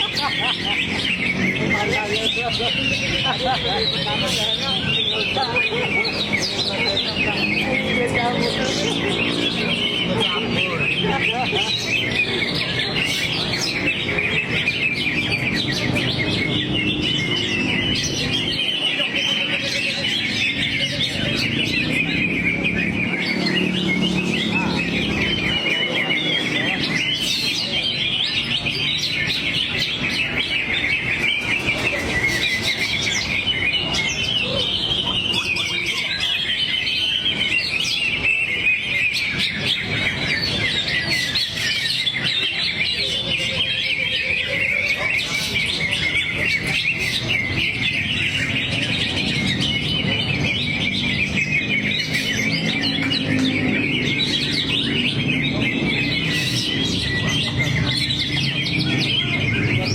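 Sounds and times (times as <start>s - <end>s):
bird singing chirps and trills: 0.0s - 59.9s.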